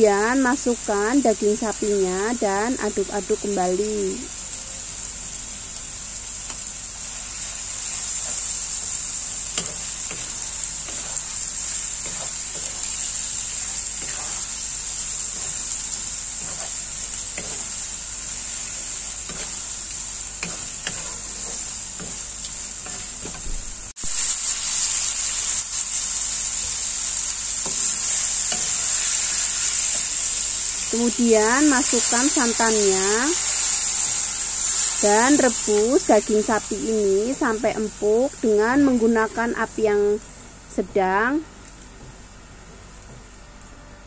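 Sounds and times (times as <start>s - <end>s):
meat sizzling in a wok: 0.0s - 42.6s
wooden spatula scraping a pan: 13.6s - 14.5s.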